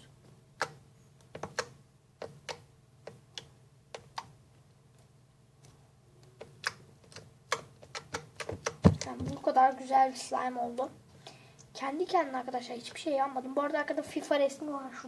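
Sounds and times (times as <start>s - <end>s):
slime clicking and popping: 6.4s - 9.1s.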